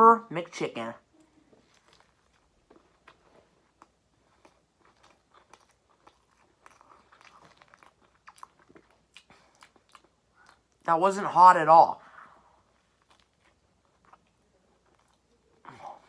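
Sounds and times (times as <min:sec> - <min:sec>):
faint chewing crunches: 0:01.0 - 0:10.9, 0:12.0 - 0:16.0.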